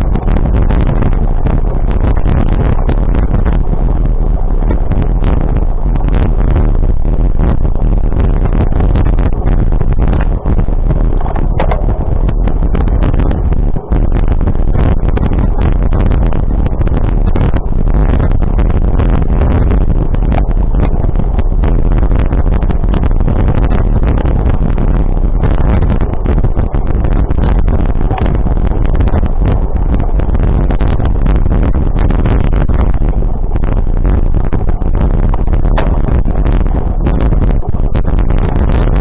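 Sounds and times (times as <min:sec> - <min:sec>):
vehicle rumble: 0:00.0 - 0:39.0
wind buffeting microphone: 0:00.0 - 0:39.0.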